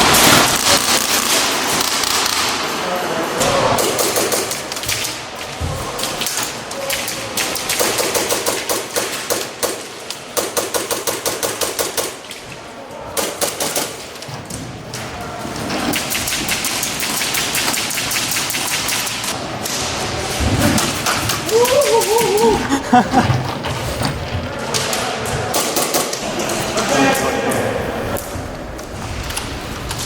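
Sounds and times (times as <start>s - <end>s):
airsoft guns firing full auto: 7.4s - 12.2s.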